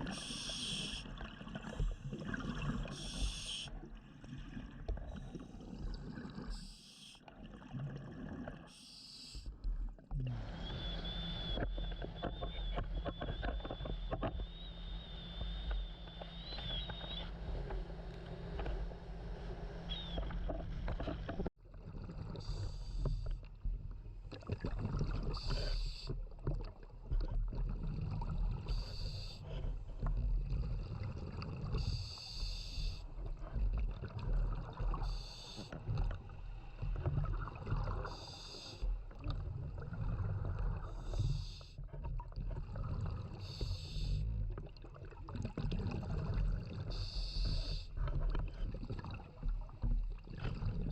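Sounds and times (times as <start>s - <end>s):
underwater rumble and bubbles: 0.0s - 50.9s
regulator inhalation hiss: 0.1s - 1.0s, 3.0s - 3.7s, 31.8s - 33.0s, 35.0s - 35.7s, 46.9s - 47.9s.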